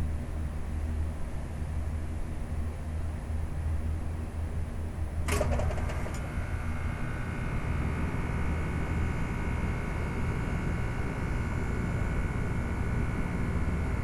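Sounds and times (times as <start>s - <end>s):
heat pump whine and hum: 0.0s - 14.0s
clatter of clicks: 5.3s - 6.2s.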